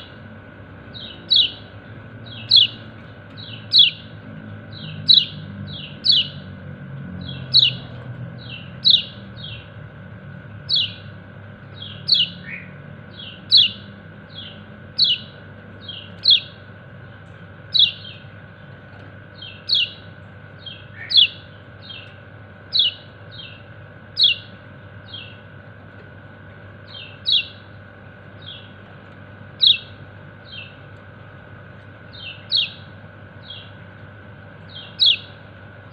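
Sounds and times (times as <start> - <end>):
steady low hum: 0.0 - 35.9
bird giving high falling calls: 0.9 - 7.9, 11.8 - 16.7, 19.4 - 25.4, 29.5 - 30.8.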